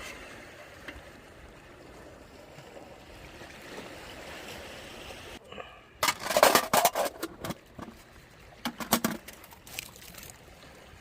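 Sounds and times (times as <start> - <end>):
sea surf: 0.0 - 6.0.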